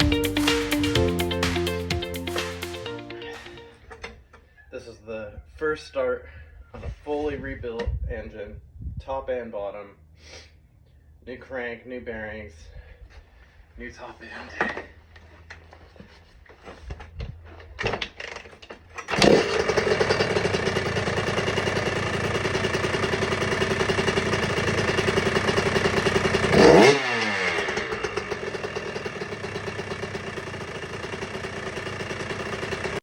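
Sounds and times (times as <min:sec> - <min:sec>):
two-stroke engine starting and running: 0:18.2 - 0:33.0
engine revving: 0:22.4 - 0:30.0.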